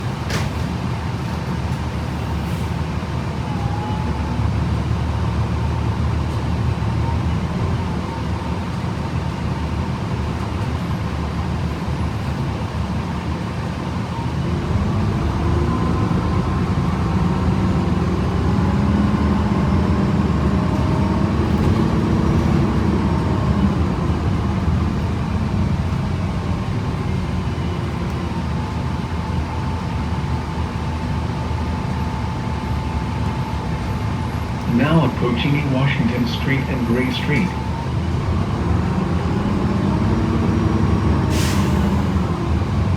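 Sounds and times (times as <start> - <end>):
bus engine rumbling: 0.0 - 42.9
transmission whining: 33.0 - 39.3.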